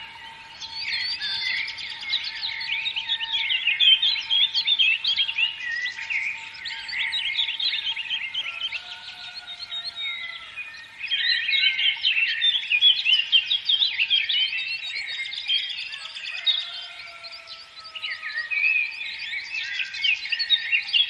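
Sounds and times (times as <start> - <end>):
songbirds chirping and twittering: 0.0 - 21.0.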